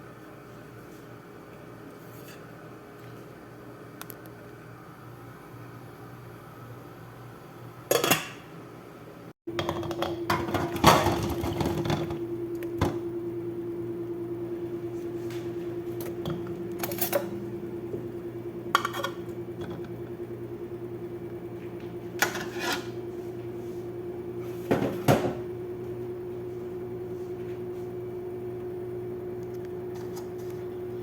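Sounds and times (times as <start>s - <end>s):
kitchen appliance pulsing hum: 0.0s - 31.0s
pots and pans clattering: 9.5s - 12.2s, 18.8s - 19.9s, 22.2s - 22.9s.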